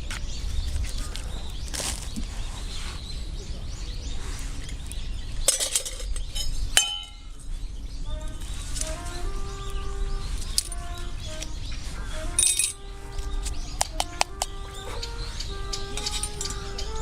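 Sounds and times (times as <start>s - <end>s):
metal cookware clinking: 5.5s - 7.2s, 12.4s - 12.8s
music: 7.9s - 17.0s.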